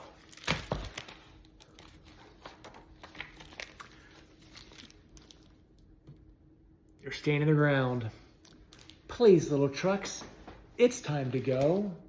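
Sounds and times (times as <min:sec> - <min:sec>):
book pages turning: 0:00.0 - 0:05.6
paper rustling: 0:00.0 - 0:05.6.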